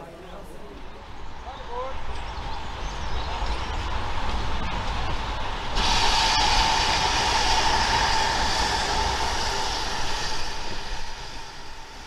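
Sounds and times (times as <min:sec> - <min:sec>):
train rushing noise: 0:00.0 - 0:12.0.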